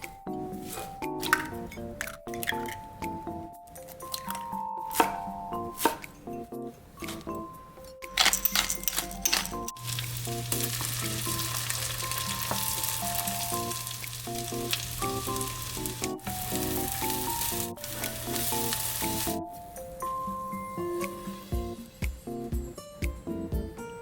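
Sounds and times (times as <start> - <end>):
light background music: 0.0 - 24.0
food sizzling in oil: 9.6 - 19.4.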